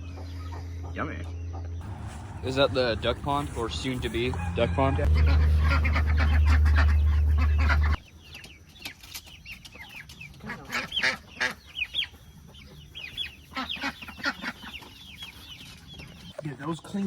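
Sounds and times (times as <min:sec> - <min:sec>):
loud low hum: 0:00.0 - 0:08.0
chickens clucking: 0:00.0 - 0:16.8.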